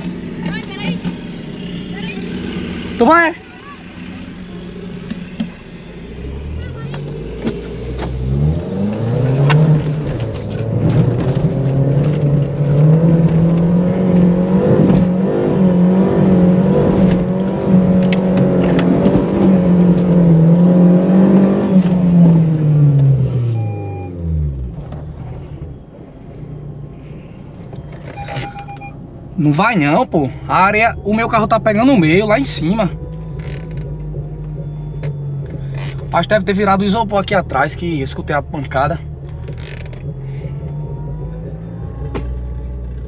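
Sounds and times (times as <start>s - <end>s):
diesel engine revving hard: 0.0s - 25.5s.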